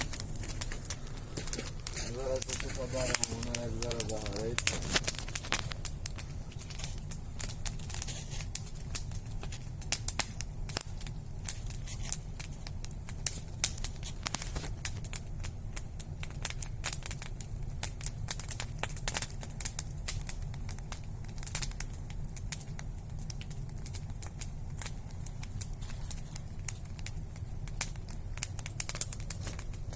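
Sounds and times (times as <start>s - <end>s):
campfire crackling and popping: 0.0s - 29.9s
low rumble of fire: 0.0s - 29.9s.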